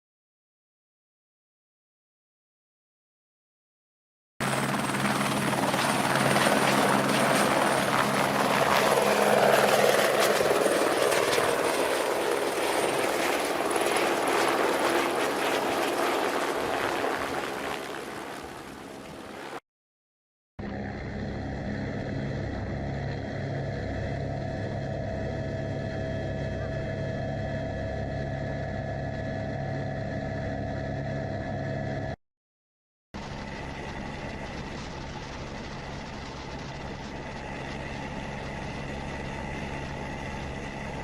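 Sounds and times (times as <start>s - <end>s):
helicopter rotor and turbine: 4.4s - 19.6s, 20.6s - 32.2s, 33.2s - 41.0s
steady engine drone: 20.6s - 32.2s, 33.2s - 41.0s.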